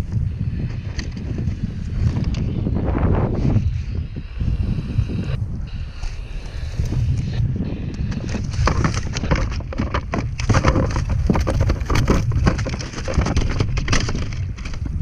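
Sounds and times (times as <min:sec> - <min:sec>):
wind rumbling on microphone: 0:00.0 - 0:15.0
gear knocking on kayak: 0:08.1 - 0:15.0.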